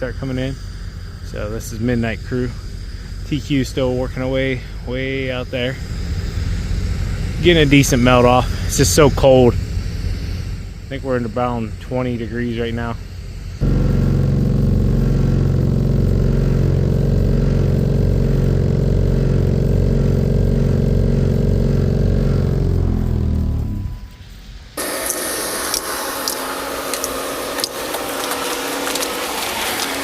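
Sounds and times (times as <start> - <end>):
steady rough noise: 0.0 - 30.0
engine running and winding down: 13.6 - 24.2, 24.8 - 30.0.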